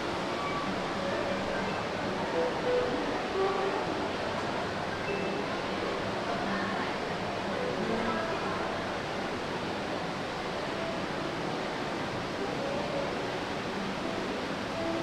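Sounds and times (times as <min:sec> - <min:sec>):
steady wash of noise: 0:00.0 - 0:15.0.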